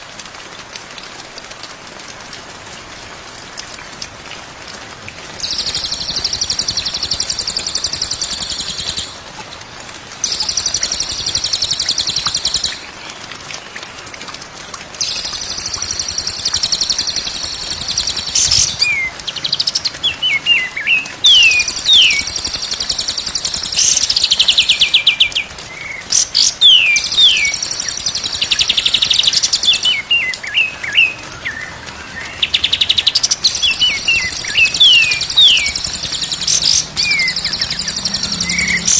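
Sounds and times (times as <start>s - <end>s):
recording hiss: 0.0s - 38.9s
songbird trills: 26.1s - 38.9s.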